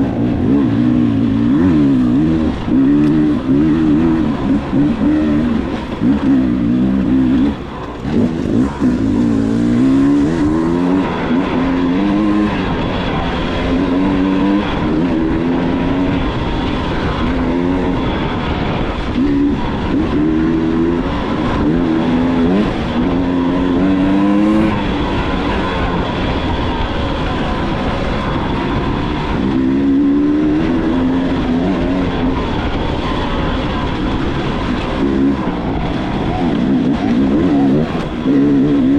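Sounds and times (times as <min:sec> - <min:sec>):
dirt bike engine revving: 0:00.0 - 0:38.9
rough rushing noise: 0:00.0 - 0:38.9.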